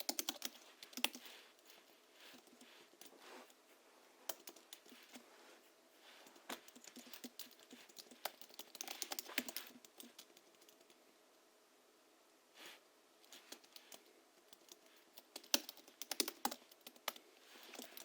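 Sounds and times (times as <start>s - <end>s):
soft muted keyboard typing: 0.0s - 3.6s, 4.2s - 5.2s, 6.2s - 11.0s, 13.2s - 18.0s.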